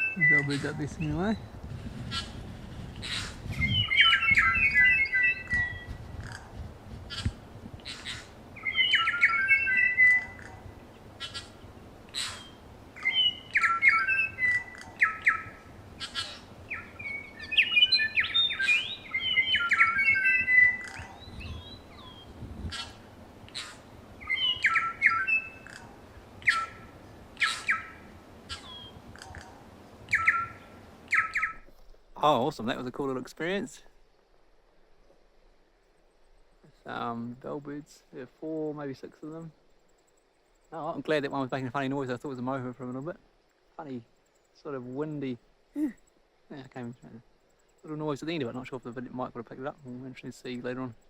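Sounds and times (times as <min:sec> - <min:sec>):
birds singing bell-like notes: 0:00.0 - 0:01.6, 0:03.6 - 0:05.9, 0:08.6 - 0:10.5, 0:12.4 - 0:22.4, 0:24.2 - 0:25.7
bird clicks: 0:14.7 - 0:15.0, 0:25.6 - 0:25.9, 0:28.5 - 0:29.6.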